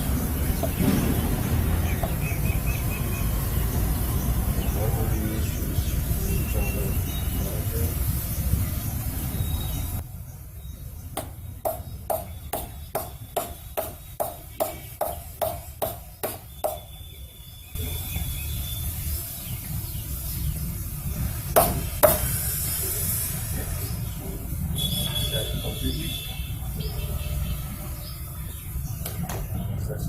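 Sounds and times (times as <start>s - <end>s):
loud knocks: 0.5s - 2.4s, 11.2s - 16.9s, 21.6s - 22.3s
hammer tapping metal: 11.2s - 16.9s, 21.6s - 22.3s.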